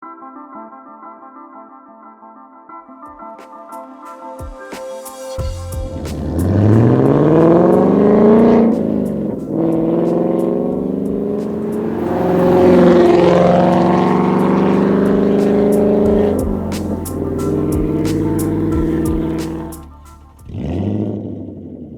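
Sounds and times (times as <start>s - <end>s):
car engine revving: 5.4s - 21.9s.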